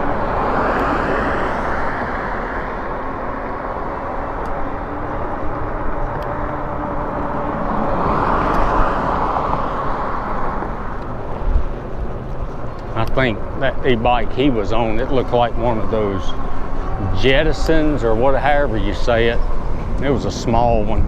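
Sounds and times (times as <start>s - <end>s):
wind rush: 0.0s - 12.6s
road noise: 0.0s - 21.0s
vehicle passing: 0.0s - 21.0s.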